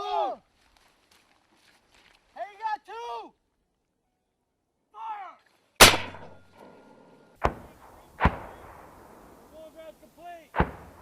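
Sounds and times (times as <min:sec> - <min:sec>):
person shouting: 0:00.0 - 0:00.4, 0:04.9 - 0:05.4
mortar blasts with rumble: 0:07.4 - 0:09.5, 0:10.6 - 0:11.0.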